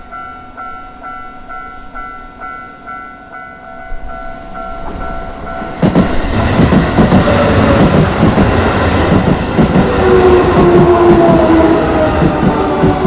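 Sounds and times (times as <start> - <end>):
crossing warning bell ringing: 0.0 - 13.0
train wheels clattering: 4.7 - 13.0.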